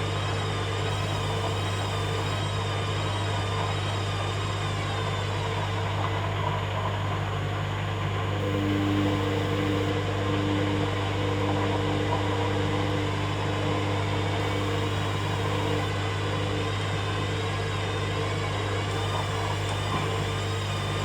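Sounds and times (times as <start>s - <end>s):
washing machine motor hum: 0.0s - 21.0s
fixed electronic tones: 0.9s - 2.5s, 8.4s - 10.0s, 14.4s - 15.9s, 18.9s - 21.0s.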